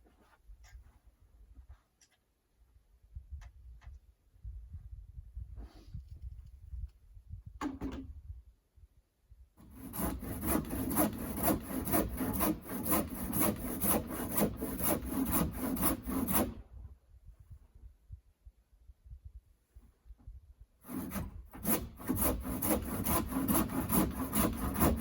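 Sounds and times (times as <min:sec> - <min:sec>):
handsaw cutting wood: 0:09.6 - 0:16.6, 0:20.8 - 0:25.0.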